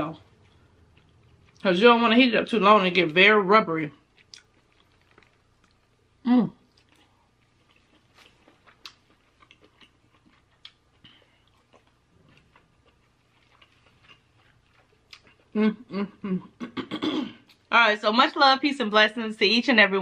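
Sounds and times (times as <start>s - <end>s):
person making voiced sounds: 6.2s - 6.6s.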